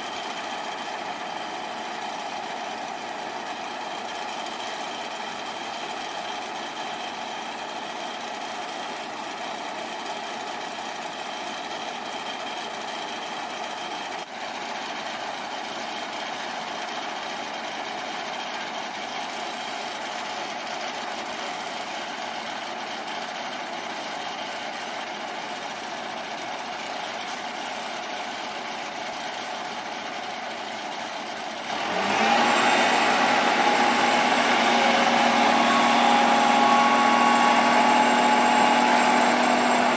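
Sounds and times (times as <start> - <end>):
diesel engine running and revving: 31.3 - 39.9.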